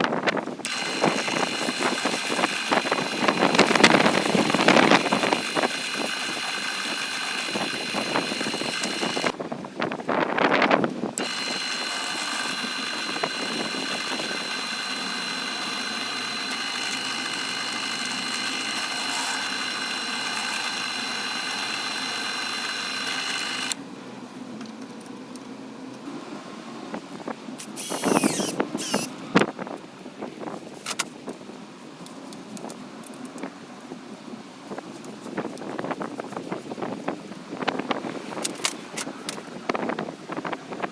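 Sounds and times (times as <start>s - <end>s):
grinder motor whine: 0.6s - 9.4s, 11.1s - 23.8s, 27.7s - 29.2s.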